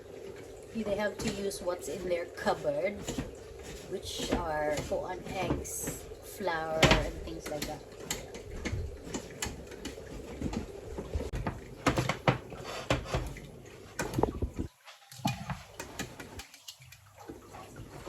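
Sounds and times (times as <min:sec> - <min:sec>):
kitchen items clicking and knocking: 0:00.9 - 0:14.7.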